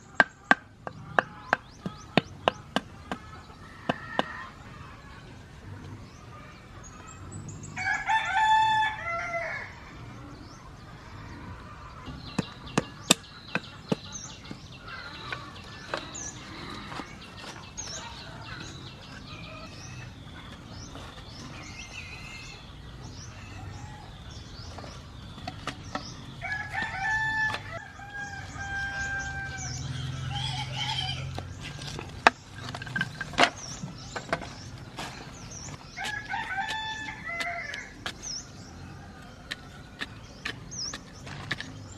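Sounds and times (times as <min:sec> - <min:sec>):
small birds chirping: 0:00.0 - 0:41.9
rooster crowing: 0:07.8 - 0:09.8, 0:26.4 - 0:31.4, 0:36.0 - 0:37.9.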